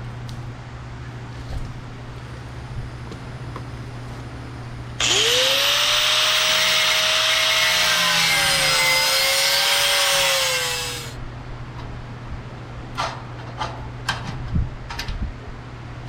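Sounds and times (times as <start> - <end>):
grinder cutting sheet metal: 5.0 - 11.2.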